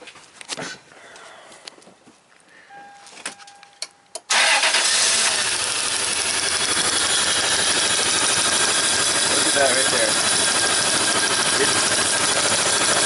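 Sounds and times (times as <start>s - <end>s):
car engine starting and running: 4.2s - 13.0s.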